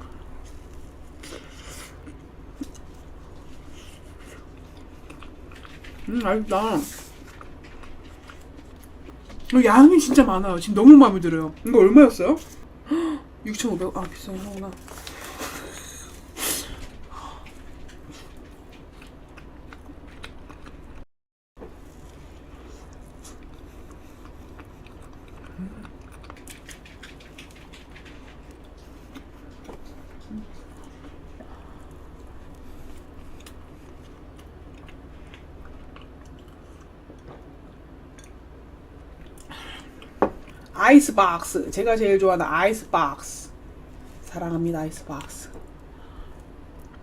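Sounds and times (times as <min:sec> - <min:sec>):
person chewing soft cake: 0:00.0 - 0:09.6, 0:14.0 - 0:21.0, 0:21.6 - 0:40.8, 0:45.2 - 0:47.0.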